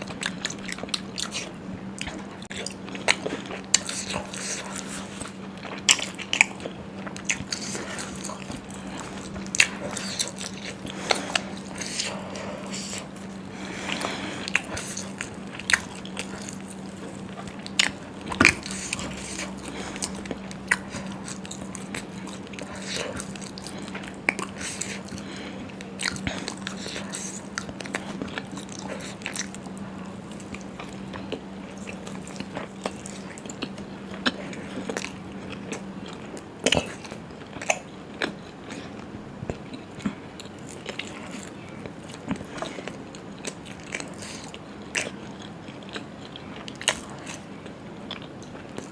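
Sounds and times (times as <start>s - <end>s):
low steady hum: 0.0s - 48.9s
person chewing food: 0.0s - 48.9s.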